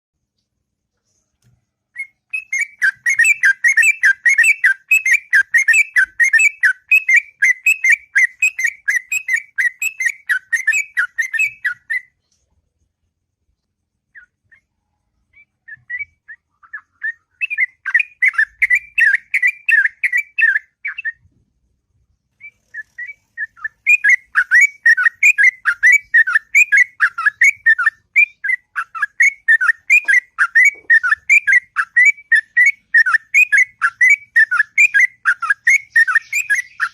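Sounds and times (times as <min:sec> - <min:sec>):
bulbul singing bubbling whistles: 0:02.0 - 0:12.1, 0:22.7 - 0:36.9.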